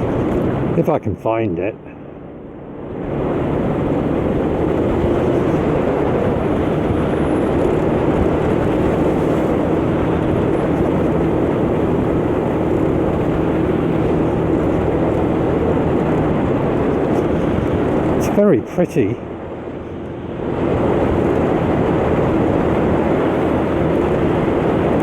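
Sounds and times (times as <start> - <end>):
wind noise on microphone: 0.0 - 1.0, 2.0 - 25.0.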